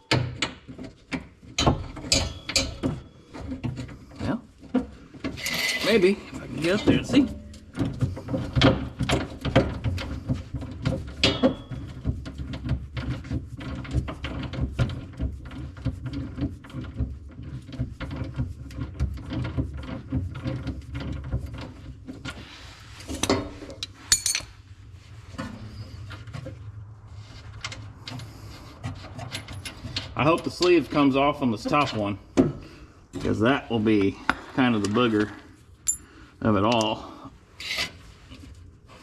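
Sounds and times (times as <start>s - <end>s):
metallic tool clicks and rattles: 23.2s - 24.5s.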